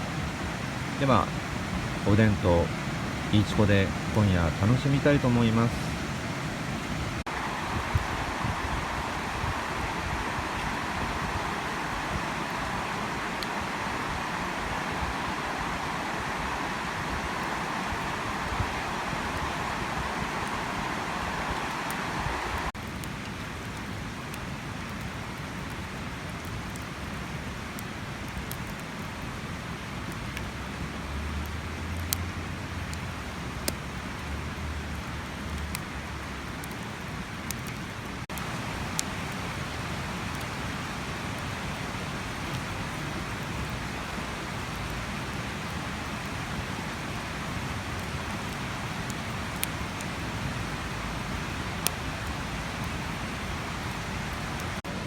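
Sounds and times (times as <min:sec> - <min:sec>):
fire crackling pops: 0:00.0 - 0:30.5, 0:31.4 - 0:34.4, 0:35.3 - 0:55.0
campfire hissing: 0:00.0 - 0:55.0.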